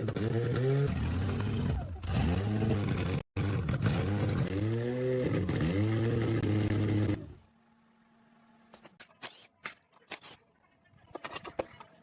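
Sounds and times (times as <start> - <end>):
car engine revving: 0.0 - 7.4.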